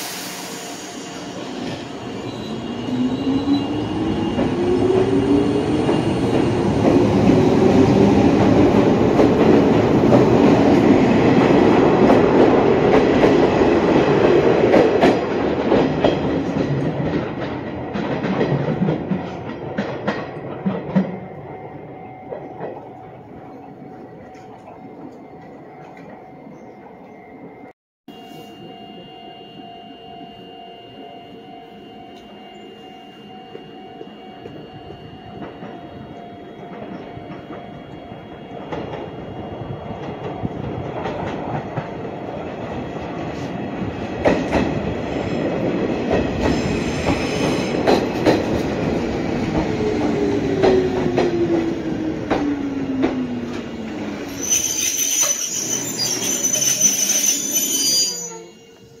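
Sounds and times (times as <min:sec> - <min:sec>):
electric train approaching: 0:00.0 - 0:59.0
high wheel squeal: 0:54.2 - 0:59.0.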